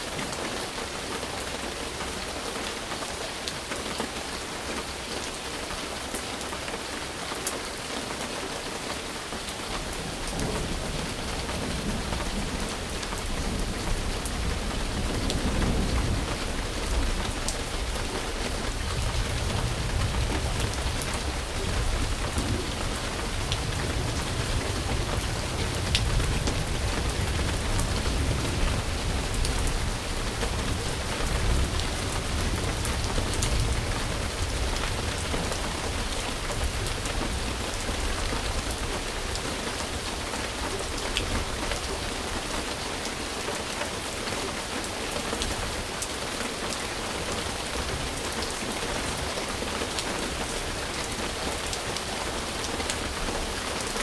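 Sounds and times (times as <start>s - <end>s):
steady rain falling: 0.0s - 54.0s
low thunder rumble: 9.9s - 39.4s.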